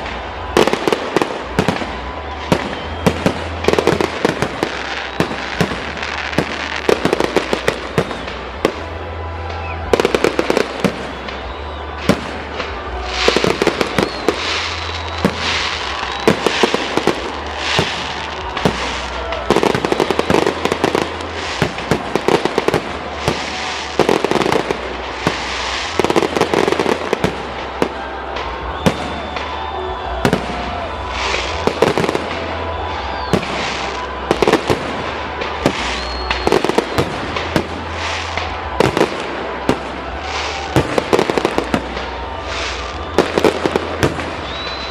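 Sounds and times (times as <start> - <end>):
fireworks bursting and banging: 0.0 - 44.9
fireworks crackling: 0.0 - 44.9.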